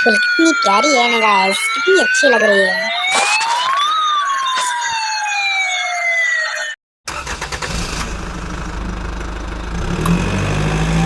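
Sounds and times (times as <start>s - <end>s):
electronic siren wailing: 0.0s - 6.8s.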